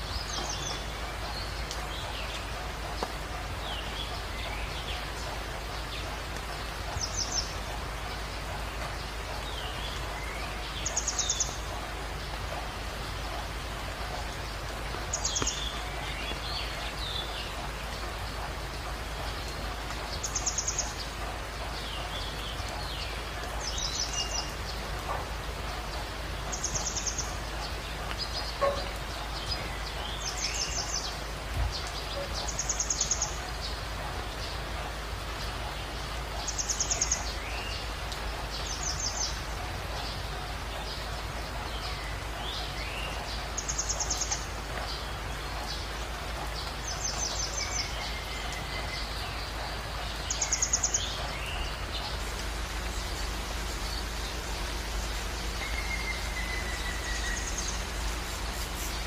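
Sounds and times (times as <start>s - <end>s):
birds calling: 0.0s - 59.0s
steady hiss: 0.0s - 59.0s.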